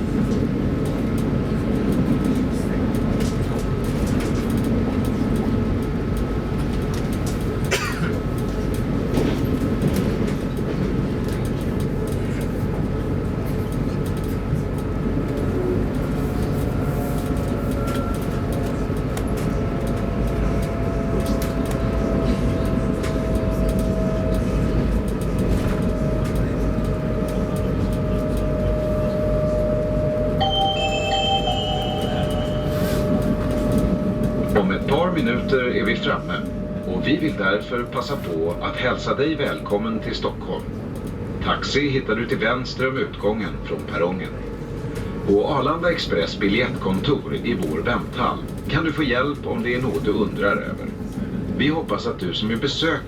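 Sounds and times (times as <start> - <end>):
electric train rumble: 0.0 - 53.0
thin steady whine: 25.9 - 40.8
falling whine: 26.9 - 40.5.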